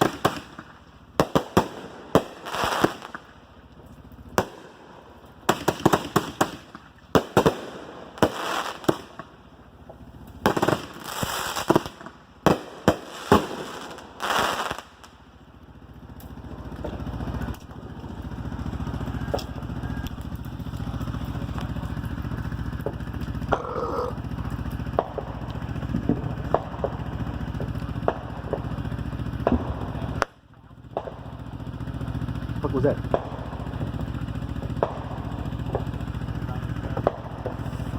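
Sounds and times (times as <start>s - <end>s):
fireworks hissing: 0.0s - 3.4s, 5.4s - 15.2s, 35.5s - 37.9s
engine hum: 0.0s - 37.9s
fireworks bangs and pops: 0.0s - 37.9s.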